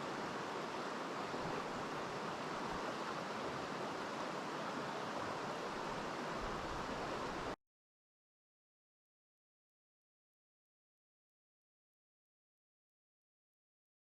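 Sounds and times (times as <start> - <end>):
stream water rushing: 0.0 - 7.6.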